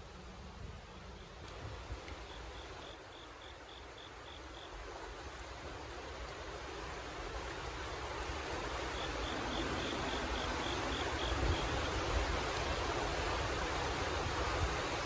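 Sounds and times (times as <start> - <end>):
cricket chirping: 2.1 - 5.1, 8.4 - 12.3
steady rushing noise: 7.7 - 15.0.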